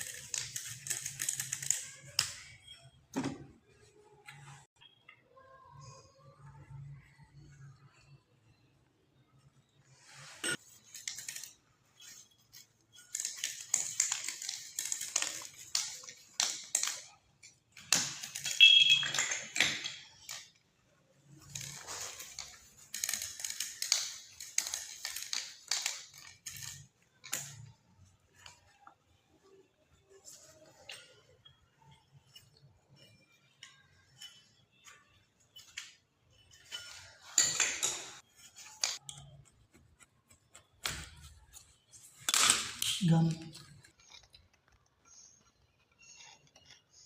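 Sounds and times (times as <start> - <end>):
scraping and rubbing: 43.6 - 47.0.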